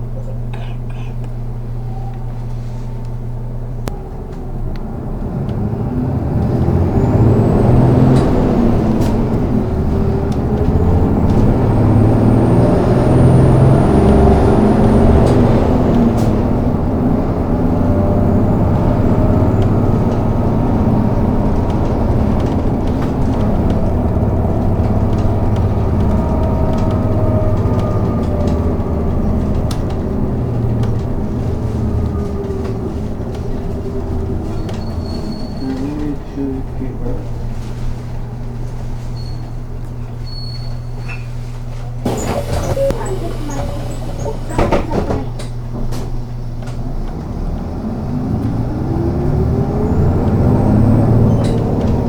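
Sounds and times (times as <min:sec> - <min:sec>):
bus engine and road rumble: 0:00.0 - 0:52.0
body rattles and clicks: 0:20.9 - 0:36.2.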